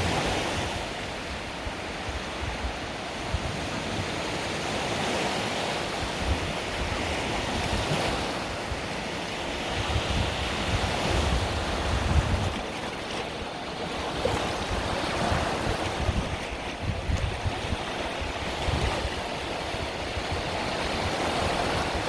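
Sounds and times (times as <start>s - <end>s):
sea waves washing onto beach: 0.0s - 22.0s
wind buffeting microphone: 5.9s - 22.0s.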